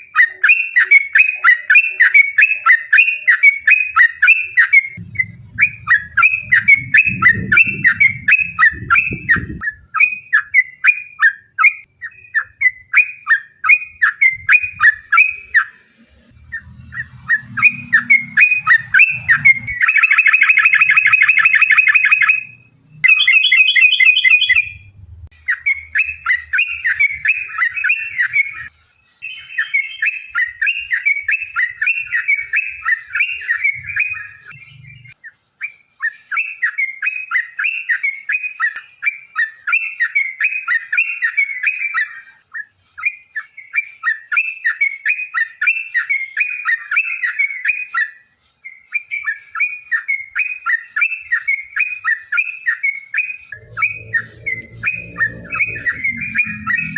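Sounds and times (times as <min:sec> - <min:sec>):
bulbul singing: 0:00.0 - 0:35.2, 0:49.1 - 0:56.9.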